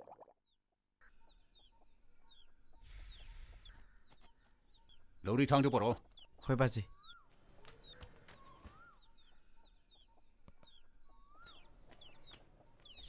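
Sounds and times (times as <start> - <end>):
faint falling bird chirps: 7.0 - 9.4
whistled bird call: 11.1 - 11.7.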